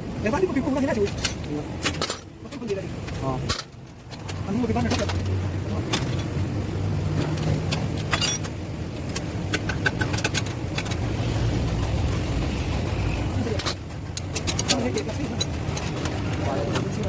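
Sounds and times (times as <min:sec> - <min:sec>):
truck engine humming: 0:05.2 - 0:17.0
sharp metallic clicks: 0:07.2 - 0:17.0.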